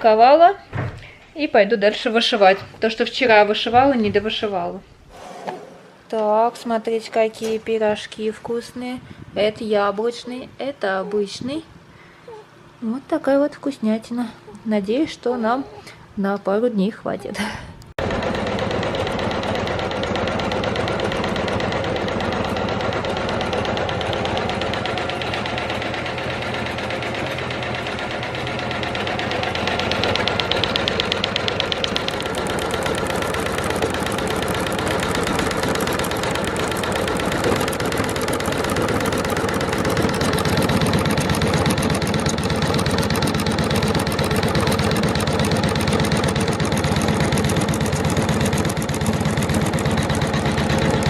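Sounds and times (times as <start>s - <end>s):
embroidery machine stitching: 18.0s - 51.0s.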